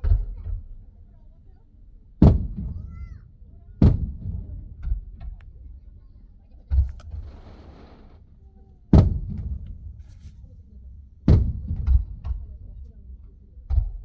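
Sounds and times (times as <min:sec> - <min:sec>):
fireworks thump: 0:06.8 - 0:10.6, 0:11.3 - 0:12.4
small fireworks crackles: 0:06.8 - 0:10.6
loud fireworks bang: 0:07.0 - 0:08.3, 0:08.9 - 0:10.0.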